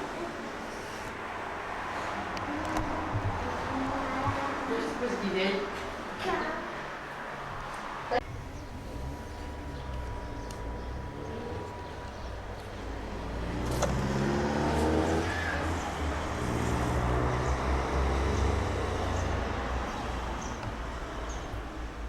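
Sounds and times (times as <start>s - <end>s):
vehicle engine revving: 8.2s - 22.0s.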